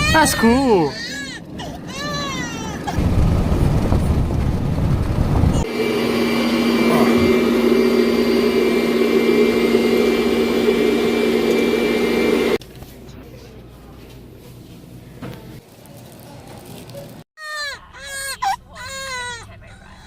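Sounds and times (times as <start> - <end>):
car interior road drone: 3.0 - 12.6.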